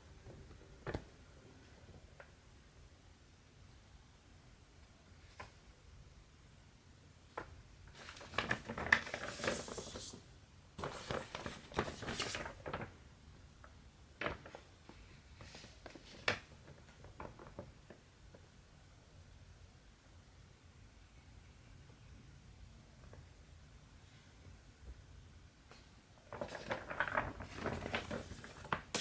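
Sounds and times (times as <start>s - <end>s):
fabric and thread rustling: 26.2s - 29.0s.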